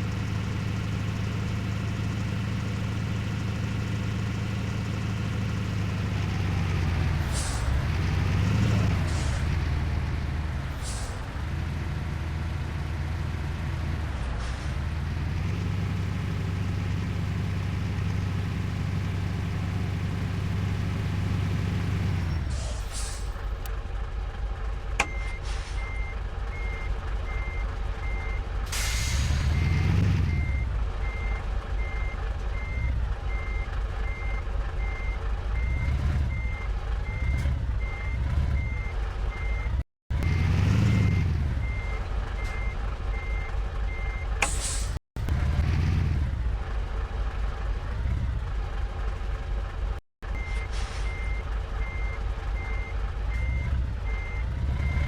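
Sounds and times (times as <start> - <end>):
engine running: 0.0 - 55.0
reversing alarm beeping: 50.4 - 55.0.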